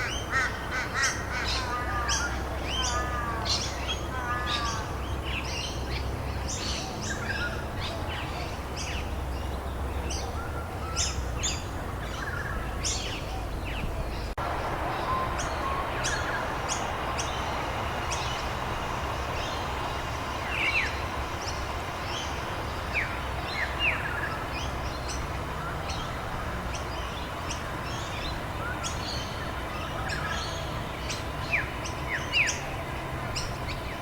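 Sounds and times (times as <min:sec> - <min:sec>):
songbirds chirping and trilling: 0:00.0 - 0:34.0
rain hissing: 0:14.3 - 0:34.0.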